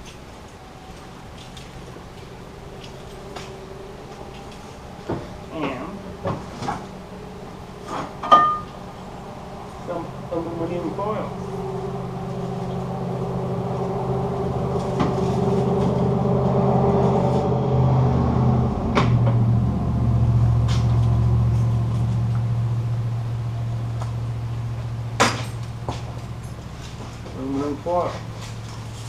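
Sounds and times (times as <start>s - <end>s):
steady low motor hum: 0.0s - 29.0s.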